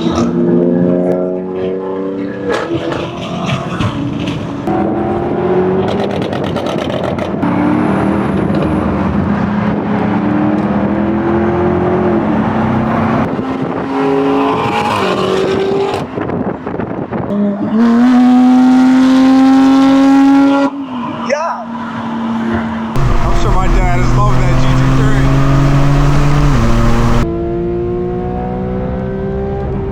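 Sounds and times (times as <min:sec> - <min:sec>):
car engine accelerating hard: 0:17.8 - 0:20.7, 0:23.0 - 0:29.9
exhaust crackles: 0:23.0 - 0:27.3.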